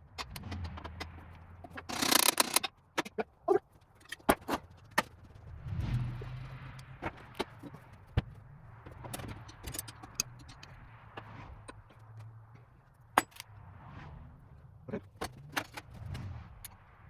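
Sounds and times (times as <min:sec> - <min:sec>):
metal parts clinking and knocking: 0:00.2 - 0:05.1.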